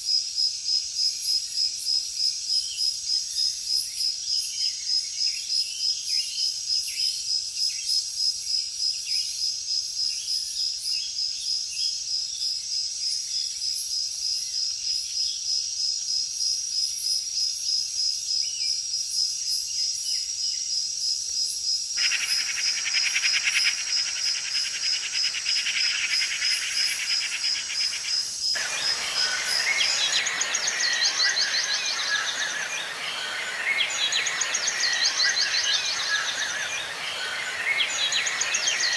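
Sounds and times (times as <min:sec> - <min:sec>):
bird chirps: 0:22.0 - 0:38.9
buzzing insect chorus: 0:22.0 - 0:38.9
pulsing high-pitched insect trill: 0:22.0 - 0:38.9.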